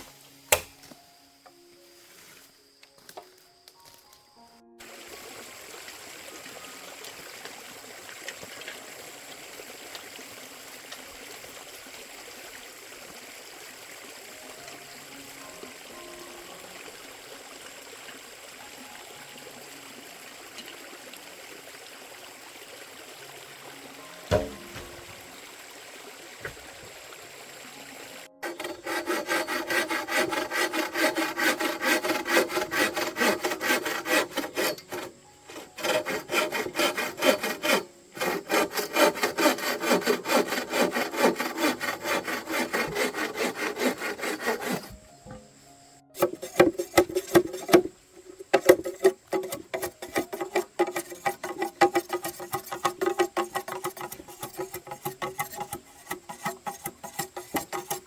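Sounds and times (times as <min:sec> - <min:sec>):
tool rasping wood: 0:24.3 - 0:25.0, 0:28.4 - 0:45.0, 0:46.2 - 0:58.0.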